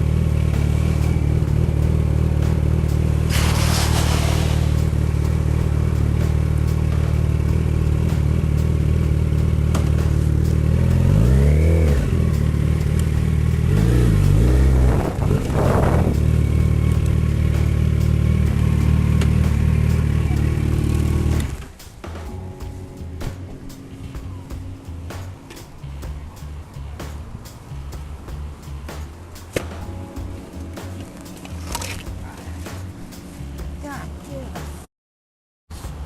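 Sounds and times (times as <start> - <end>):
motorcycle engine revving: 0.0 - 21.8.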